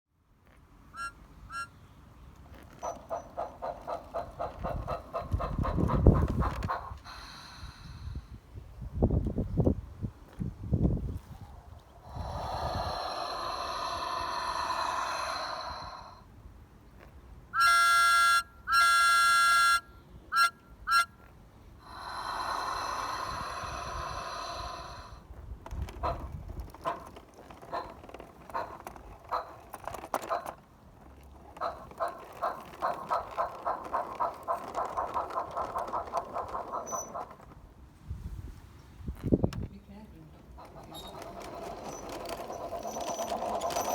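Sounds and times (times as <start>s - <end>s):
whistle toots: 1.0s - 1.8s, 17.6s - 21.2s
steam locomotive chuffing: 2.8s - 8.2s, 31.5s - 37.5s, 40.5s - 43.9s
steam hiss: 12.1s - 16.2s, 21.9s - 25.2s
train whistle blasts: 17.6s - 21.1s.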